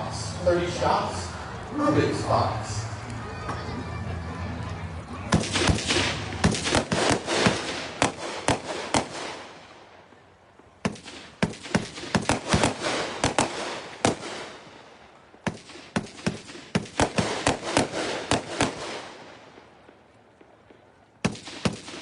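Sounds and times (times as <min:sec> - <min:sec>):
firework cake firing: 0:05.3 - 0:10.0, 0:10.8 - 0:22.0.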